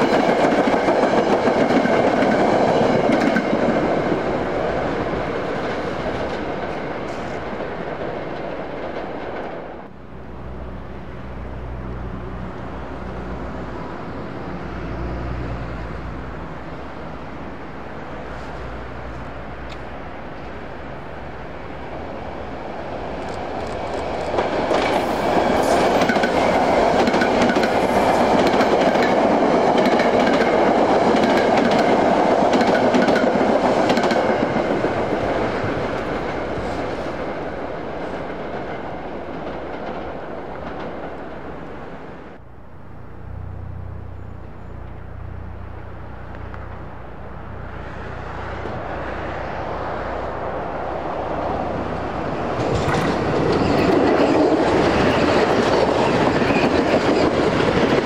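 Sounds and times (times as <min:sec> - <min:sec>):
train rumble: 0:00.0 - 0:58.0
train wheels clattering: 0:23.2 - 0:41.3, 0:52.2 - 0:58.0.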